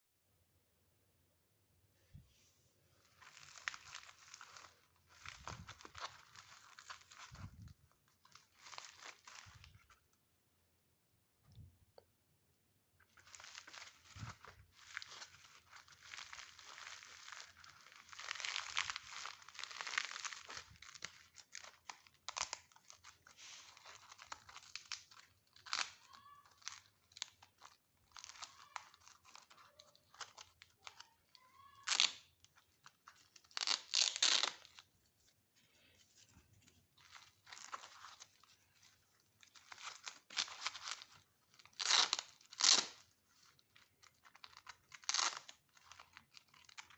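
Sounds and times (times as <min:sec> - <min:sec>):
velcro strips ripping apart: 0:13.1 - 0:34.8, 0:39.4 - 0:46.9.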